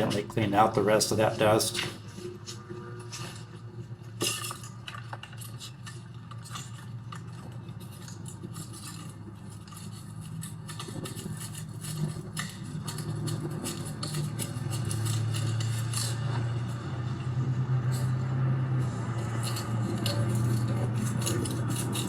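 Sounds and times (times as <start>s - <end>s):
steady low hum: 0.0s - 22.0s
brush scratching: 7.9s - 16.7s, 18.8s - 22.0s.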